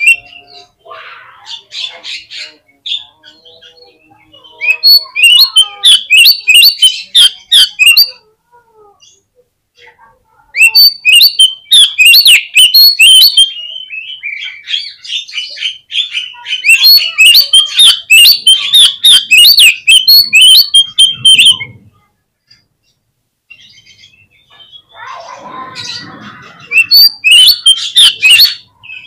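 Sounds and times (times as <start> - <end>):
bird singing chirps and whistles: 0.0 - 0.8, 2.9 - 8.2, 10.6 - 21.8, 25.8 - 29.0.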